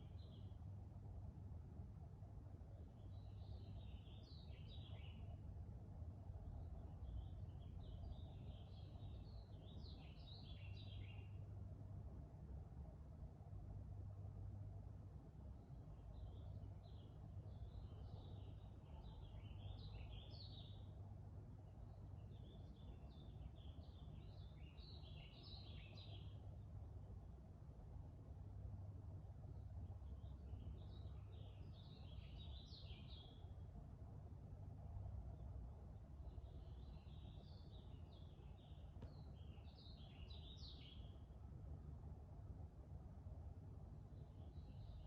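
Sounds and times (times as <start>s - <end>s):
low background rumble: 0.0s - 45.0s
songbird chirping: 2.9s - 5.5s, 6.6s - 11.5s, 16.0s - 26.8s, 30.0s - 41.5s, 43.6s - 45.0s.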